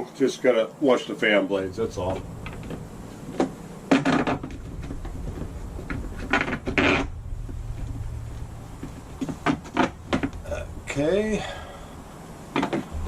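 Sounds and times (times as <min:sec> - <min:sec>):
hardware clicking and knocking: 0:12.5 - 0:13.0.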